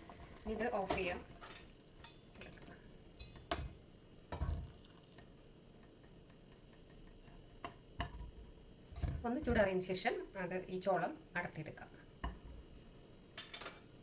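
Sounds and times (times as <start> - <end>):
cooking pot and utensils clicking: 13.4 - 13.9.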